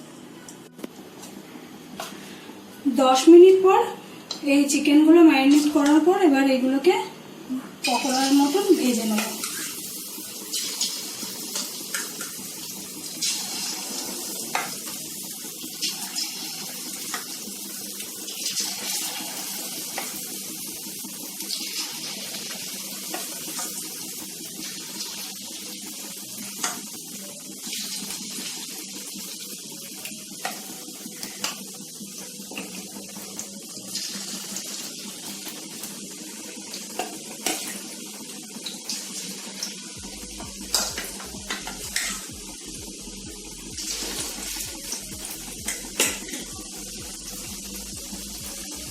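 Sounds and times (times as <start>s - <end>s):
food deep-frying in oil: 7.8s - 48.9s
oil popping and crackling: 43.8s - 46.5s.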